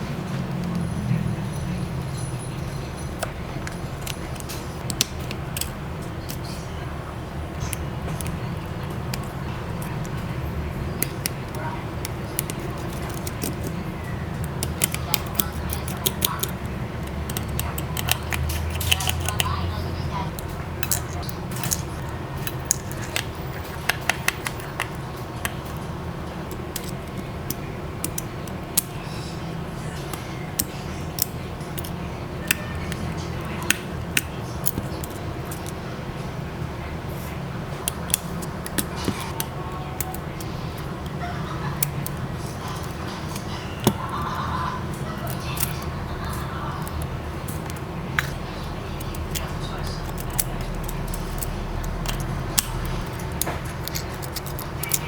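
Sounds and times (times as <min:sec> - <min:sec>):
steady low hum: 0:00.0 - 0:55.0
metal tools clicking and tapping: 0:00.3 - 0:06.8, 0:07.5 - 0:13.8, 0:14.4 - 0:19.6, 0:20.3 - 0:29.2, 0:29.8 - 0:35.8, 0:37.8 - 0:55.0
small hand tools clicking: 0:49.1 - 0:55.0.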